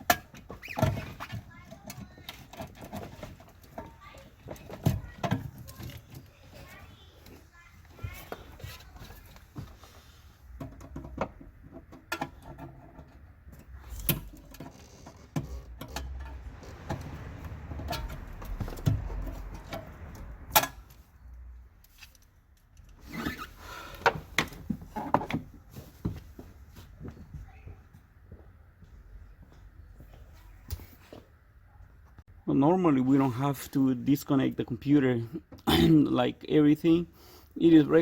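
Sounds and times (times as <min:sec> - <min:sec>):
tools and parts being handled: 0:00.0 - 0:27.3.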